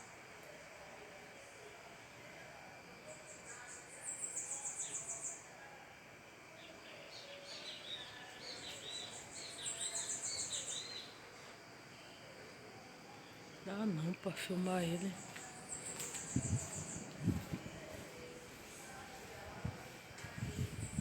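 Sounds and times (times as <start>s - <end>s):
small bird singing: 3.1s - 5.5s, 6.6s - 11.2s, 14.8s - 17.5s.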